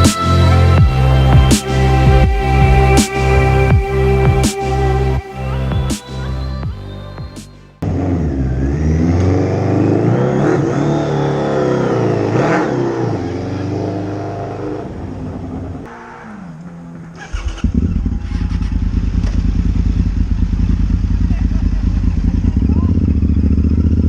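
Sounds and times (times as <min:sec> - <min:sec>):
motorcycle engine revving: 0:07.8 - 0:24.0
motorcycle engine running steadily: 0:17.4 - 0:24.0.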